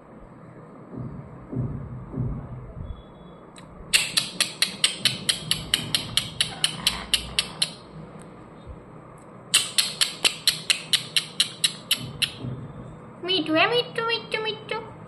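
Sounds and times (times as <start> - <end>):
parrot tapping with beak: 4.0 - 7.8, 9.6 - 12.7.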